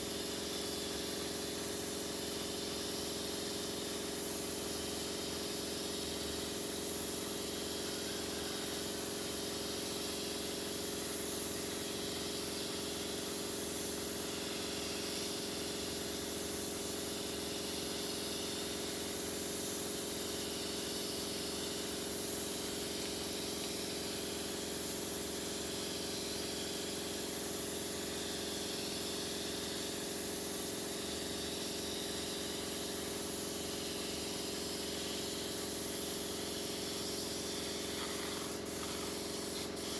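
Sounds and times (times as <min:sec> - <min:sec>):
spray gun hissing: 0:32.2 - 0:39.9
steady low hum: 0:35.0 - 0:39.9.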